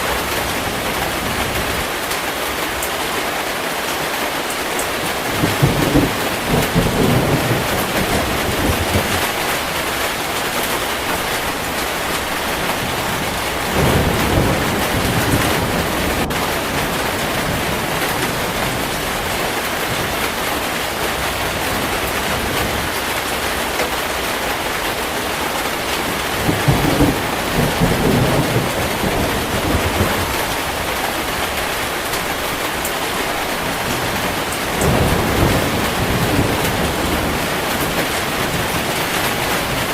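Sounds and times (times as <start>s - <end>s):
heavy rain: 0.0s - 39.9s
thunder rumbling: 4.8s - 39.9s.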